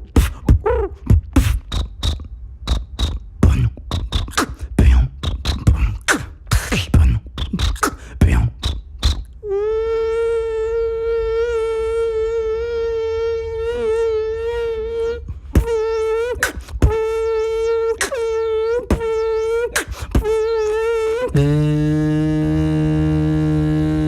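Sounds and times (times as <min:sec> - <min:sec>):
buzzy vocal hum: 0:00.0 - 0:24.0
sharp mouth clicks: 0:00.1 - 0:09.4, 0:16.4 - 0:17.0, 0:18.0 - 0:18.3, 0:19.7 - 0:20.4
low vocal drone: 0:02.7 - 0:08.8, 0:09.4 - 0:24.0.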